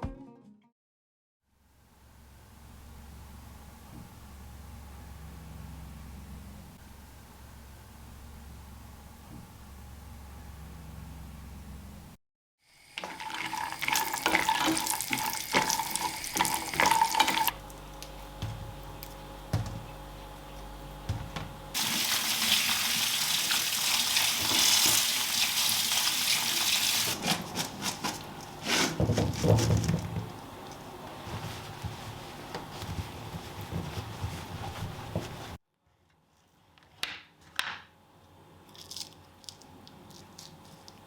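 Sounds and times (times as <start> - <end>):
tap water running into sink: 12.9 - 17.5, 21.8 - 27.2.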